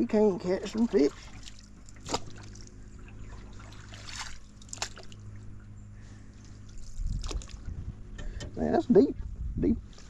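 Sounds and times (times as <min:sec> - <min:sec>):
water trickling off paddle: 0:00.4 - 0:05.5
paddle splashing in water: 0:00.6 - 0:05.4, 0:06.5 - 0:07.7.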